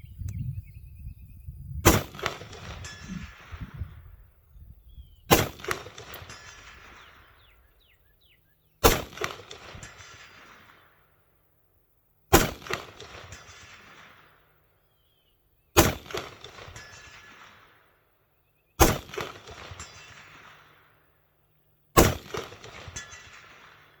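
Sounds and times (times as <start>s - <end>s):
rifle shots: 1.8s - 3.7s, 5.3s - 7.6s, 8.8s - 11.0s, 12.3s - 14.6s, 15.8s - 17.9s, 18.8s - 21.2s, 22.0s - 24.0s
rolling echo: 1.8s - 11.2s.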